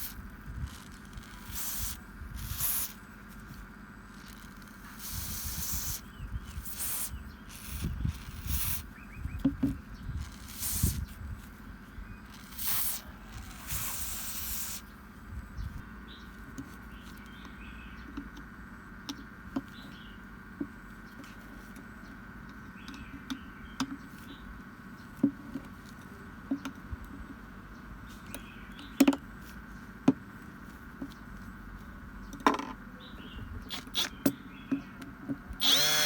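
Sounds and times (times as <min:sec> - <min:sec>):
small parts clicking: 0:00.0 - 0:03.0, 0:33.7 - 0:34.4, 0:35.0 - 0:36.0
spray hissing bursts: 0:01.5 - 0:03.0, 0:12.5 - 0:14.8.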